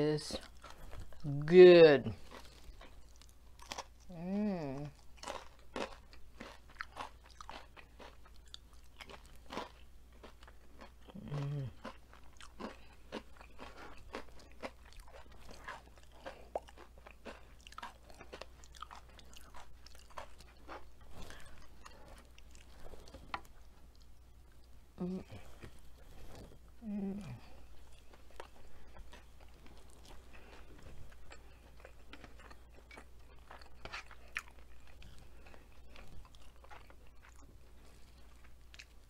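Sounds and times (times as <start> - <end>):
crunchy chewing: 0.3 - 1.4, 2.2 - 4.2, 4.8 - 39.0
person humming mmm: 4.1 - 5.0, 11.1 - 11.8, 25.0 - 25.4, 26.8 - 27.6.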